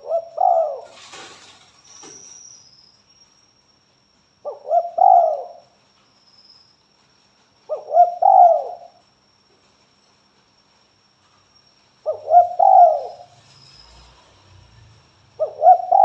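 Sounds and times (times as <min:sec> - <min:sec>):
dove cooing: 0:00.0 - 0:01.1, 0:04.5 - 0:05.7, 0:07.7 - 0:09.0, 0:12.1 - 0:13.3, 0:15.4 - 0:16.0.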